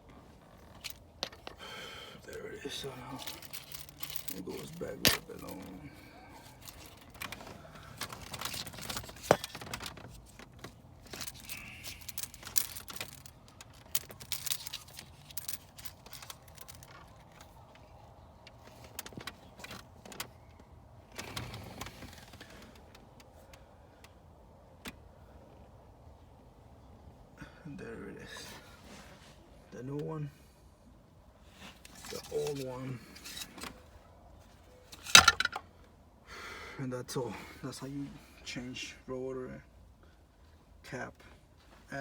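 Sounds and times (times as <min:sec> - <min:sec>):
hands fitting hose in engine: 0:00.5 - 0:05.8, 0:06.4 - 0:17.0.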